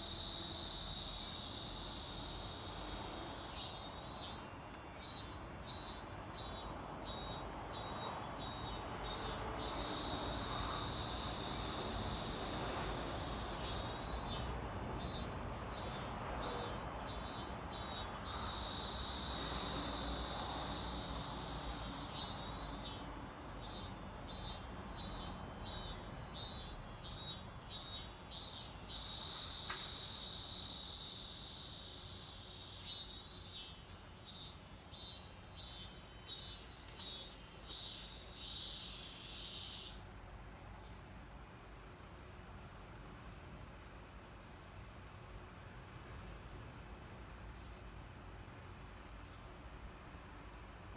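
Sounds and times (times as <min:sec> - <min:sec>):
cicada pulsing song: 0:00.0 - 0:40.0
high insect drone: 0:00.0 - 0:40.0.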